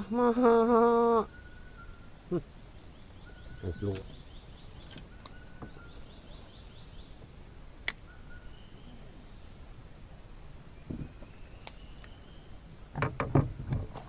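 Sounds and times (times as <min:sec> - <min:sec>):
high insect drone: 0:00.0 - 0:14.0
whistled bird-like notes: 0:01.2 - 0:06.8, 0:08.0 - 0:09.1.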